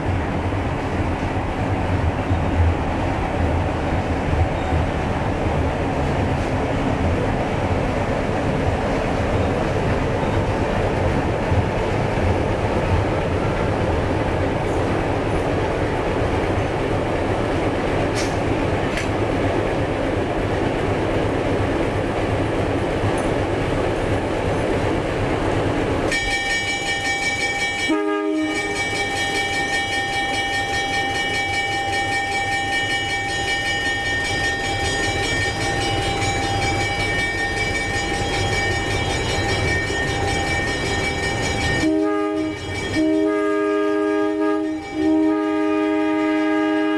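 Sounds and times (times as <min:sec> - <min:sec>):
train rumbling by: 0:00.0 - 0:46.9
locomotive air horn blast: 0:26.1 - 0:29.4, 0:41.8 - 0:46.9.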